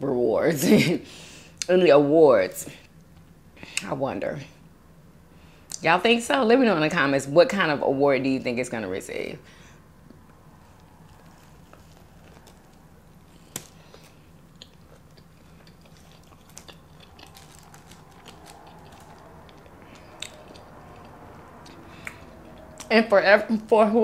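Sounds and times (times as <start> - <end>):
faint low hum: 0.0 - 24.0
quiet chewing: 10.1 - 22.9.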